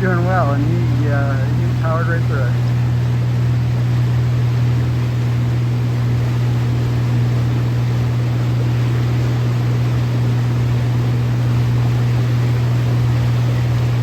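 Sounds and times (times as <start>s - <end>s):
white water rushing: 0.0s - 2.8s
boat engine droning: 0.0s - 14.0s.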